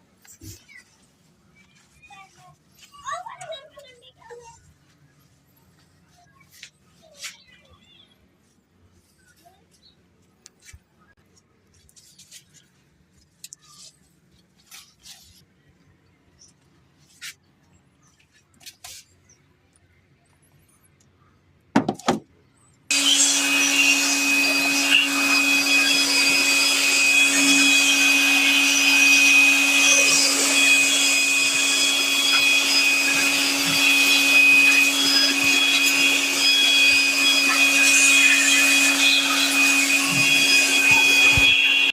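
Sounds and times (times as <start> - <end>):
high-speed electric motor whining: 22.9 - 41.9.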